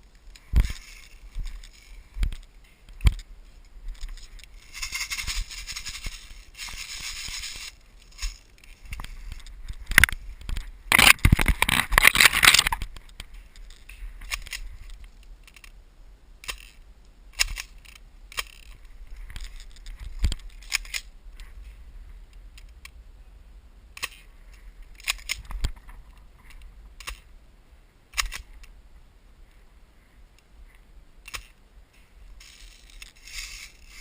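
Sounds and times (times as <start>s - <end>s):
sharp clicks and snaps: 25.0s - 27.3s, 28.1s - 28.8s.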